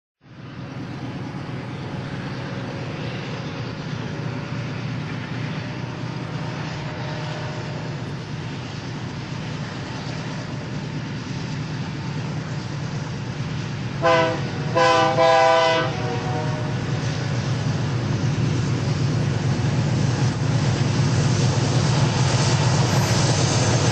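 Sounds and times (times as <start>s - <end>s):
diesel locomotives rumbling: 0.2s - 23.9s
locomotive horn blasts: 6.8s - 8.0s, 14.0s - 17.0s.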